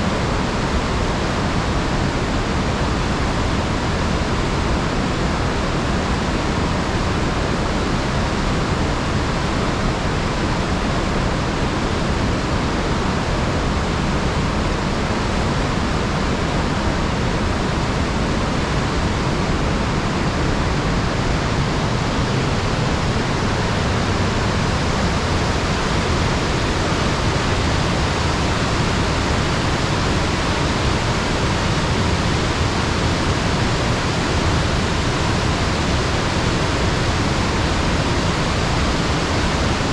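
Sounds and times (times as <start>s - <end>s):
waterfall rushing: 8.3s - 39.9s.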